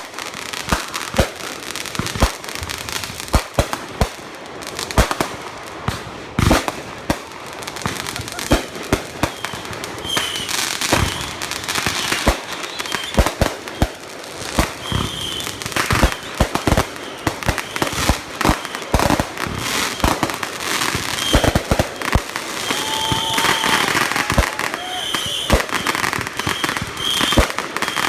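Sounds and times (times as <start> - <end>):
firework crackle: 0.0 - 28.0
firework bangs: 4.9 - 28.0
firework whistling: 7.9 - 14.0, 14.6 - 28.0.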